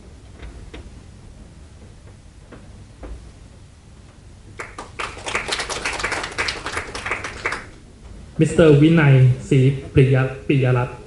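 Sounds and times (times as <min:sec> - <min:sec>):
crowd applauding: 0:04.6 - 0:07.8.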